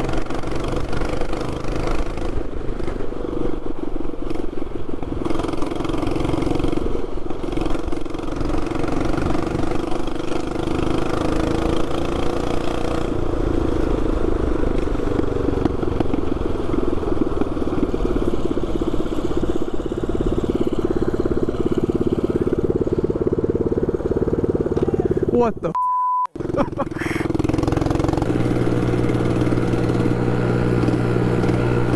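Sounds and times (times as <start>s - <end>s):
mini bike engine running: 0.0s - 25.7s, 26.4s - 31.9s.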